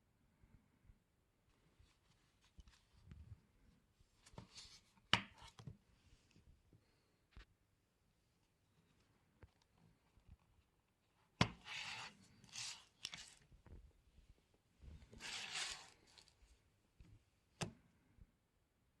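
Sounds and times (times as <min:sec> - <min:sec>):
scratchy rubbing and scraping: 0:11.6 - 0:13.4, 0:14.9 - 0:16.4.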